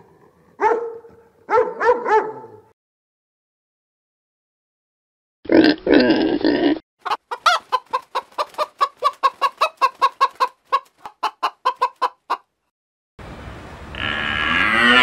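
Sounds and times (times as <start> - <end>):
hen clucking: 7.0 - 12.5.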